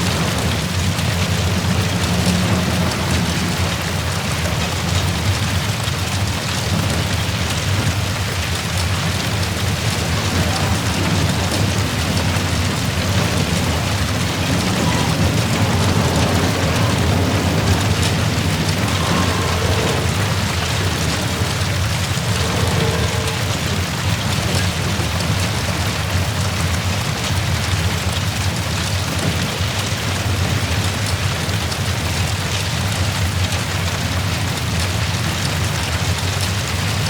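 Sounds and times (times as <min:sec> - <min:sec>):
fire crackling: 0:00.0 - 0:27.9
large fire roaring: 0:00.0 - 0:37.0.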